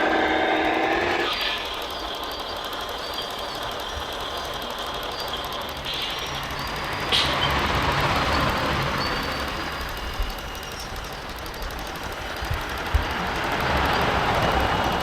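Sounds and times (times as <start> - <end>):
high-pitched motor whines: 0.0 - 15.0
small motors whirring and rattling: 0.0 - 15.0.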